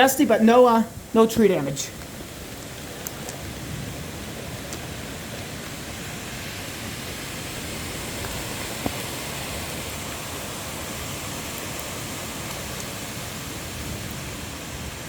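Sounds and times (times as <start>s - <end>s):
strong wind gusting through trees: 0.0s - 15.0s.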